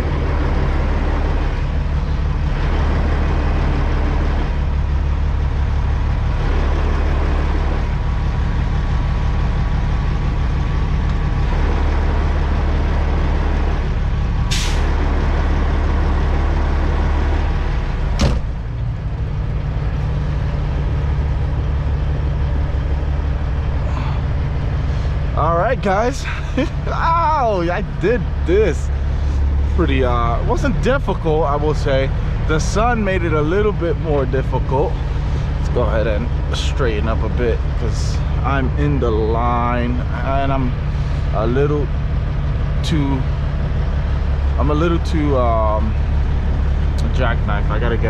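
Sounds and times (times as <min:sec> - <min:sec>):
diesel truck engine idling: 0:00.0 - 0:48.0
air brake hiss: 0:14.5 - 0:14.9
sharp burst of air: 0:14.5 - 0:14.9.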